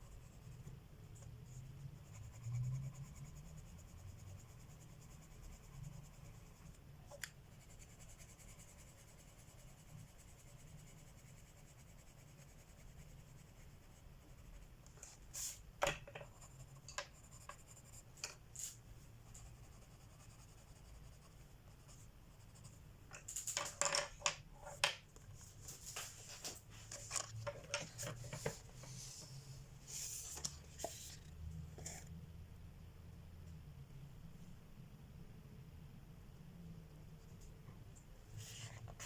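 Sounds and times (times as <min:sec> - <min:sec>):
pencil scratching on paper: 0:00.0 - 0:06.8, 0:07.5 - 0:14.7, 0:16.2 - 0:18.1, 0:19.2 - 0:22.8.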